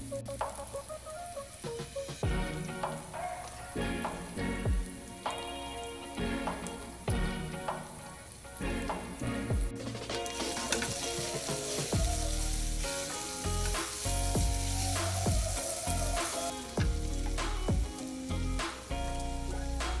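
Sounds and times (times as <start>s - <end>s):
background music with beat: 0.0s - 20.0s
food sizzling in a pan: 0.0s - 20.0s.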